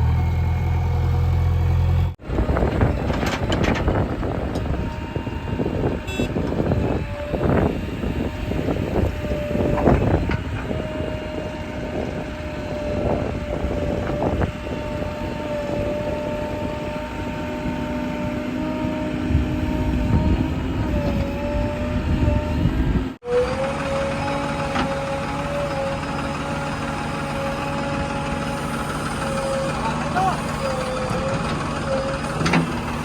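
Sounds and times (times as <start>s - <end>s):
diesel engine whining: 0.0s - 33.0s.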